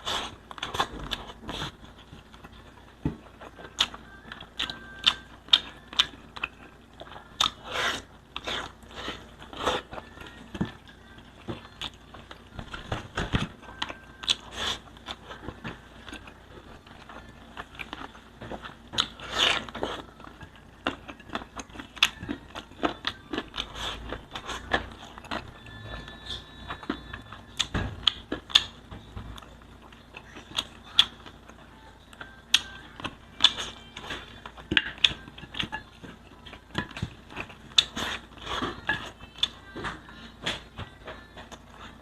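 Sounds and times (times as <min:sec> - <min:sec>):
chewing and mouth sounds: 0:00.0 - 0:10.4, 0:13.2 - 0:28.8.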